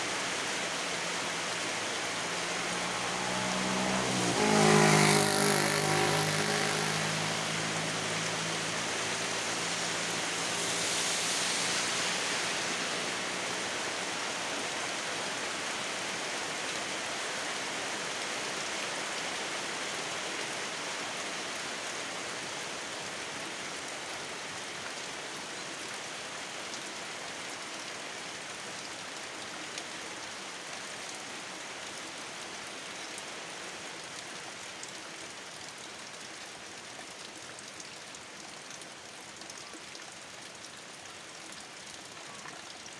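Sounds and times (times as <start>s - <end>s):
steady rain: 0.0s - 42.9s
low engine hum: 0.2s - 10.7s.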